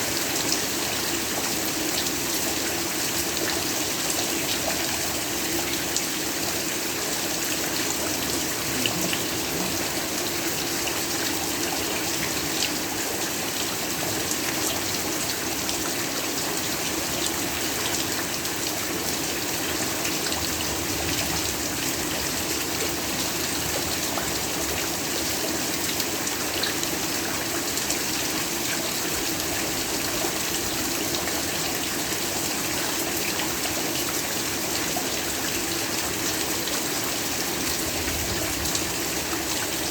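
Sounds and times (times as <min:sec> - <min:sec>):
heavy rain hiss: 0:06.4 - 0:12.9.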